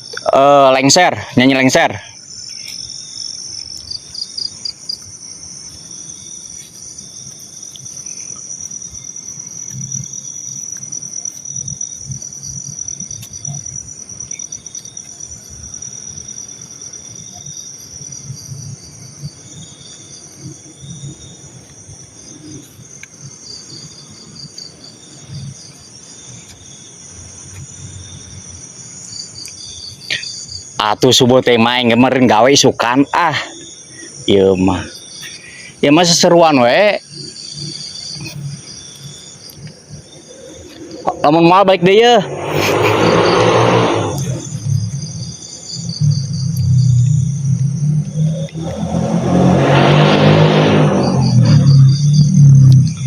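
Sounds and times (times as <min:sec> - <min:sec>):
crickets trilling: 0:00.0 - 0:53.0
insect chirps: 0:00.0 - 0:53.0
low rumbling: 0:40.2 - 0:45.3.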